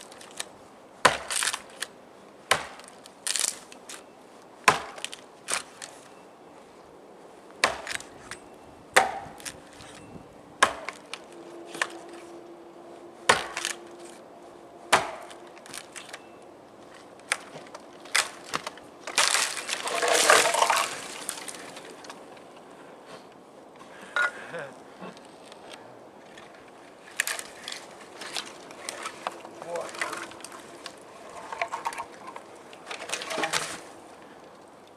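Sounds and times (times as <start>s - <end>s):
hatchet chopping wood: 1.0s - 1.5s, 2.5s - 2.8s, 4.7s - 5.1s, 7.6s - 8.0s, 9.0s - 9.5s, 10.6s - 11.0s, 13.3s - 13.8s, 14.9s - 15.4s
tree crashing down: 17.2s - 22.2s, 27.0s - 34.0s.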